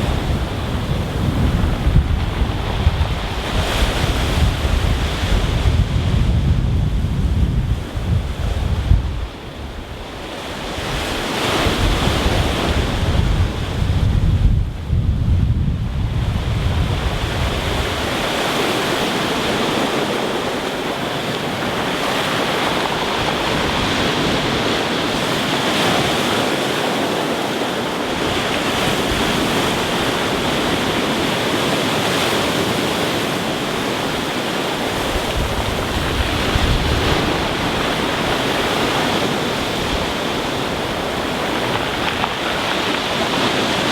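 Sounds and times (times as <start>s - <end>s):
wind buffeting microphone: 0.0s - 43.9s
surf breaking on pebble beach: 15.8s - 43.9s.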